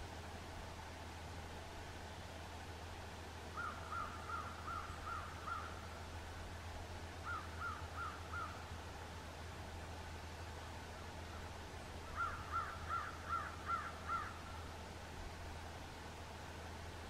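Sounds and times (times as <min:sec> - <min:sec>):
steady hiss: 0:00.0 - 0:17.0
bird calling: 0:03.5 - 0:05.9, 0:07.2 - 0:08.6, 0:12.1 - 0:14.6.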